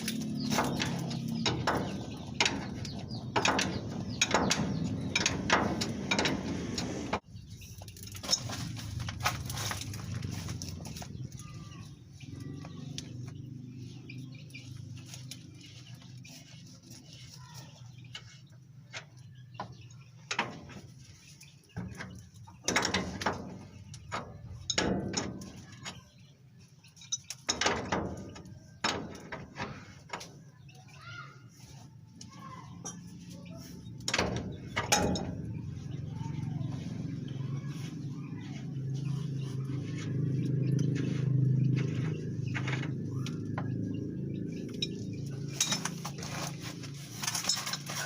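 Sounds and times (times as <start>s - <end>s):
clicks and knocks on metal parts: 0.0s - 7.0s, 21.8s - 26.1s, 26.9s - 30.4s, 33.9s - 35.8s, 44.6s - 46.2s.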